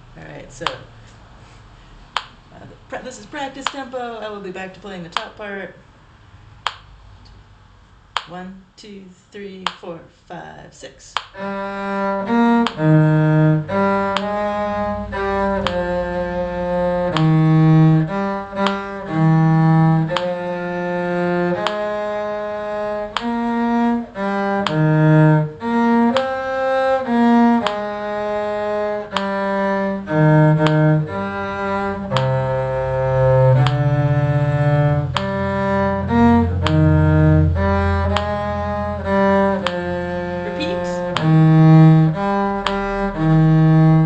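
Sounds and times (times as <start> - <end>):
cellos playing slow round: 11.4 - 44.0.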